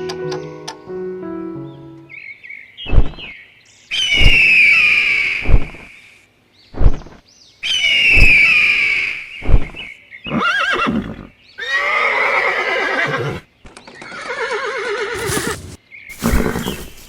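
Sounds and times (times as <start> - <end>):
horse whinnying: 10.3 - 13.4, 14.0 - 17.0
heavy hoof thuds: 15.1 - 17.0.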